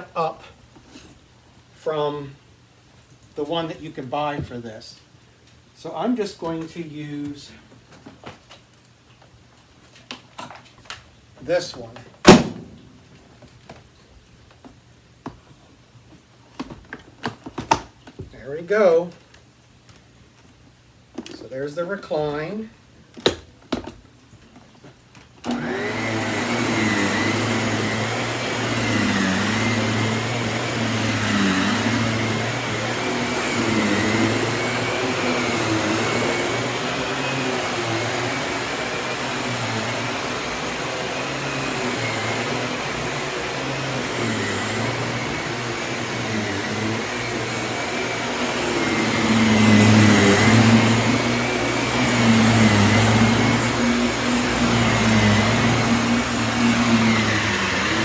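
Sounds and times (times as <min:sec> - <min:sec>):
stick vacuum humming: 0:25.5 - 0:58.0.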